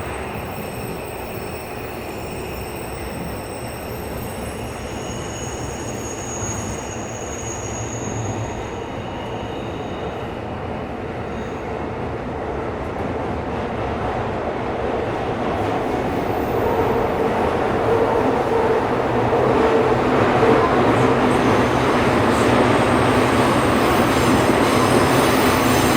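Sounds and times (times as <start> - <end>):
high wheel squeal: 0.0 - 10.4, 20.2 - 25.9
subway train running: 0.0 - 25.9.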